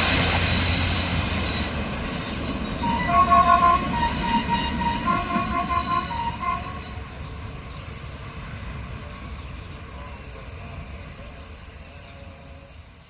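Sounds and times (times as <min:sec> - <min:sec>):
train low rumble: 0:00.0 - 0:13.0
train horn: 0:00.4 - 0:07.3.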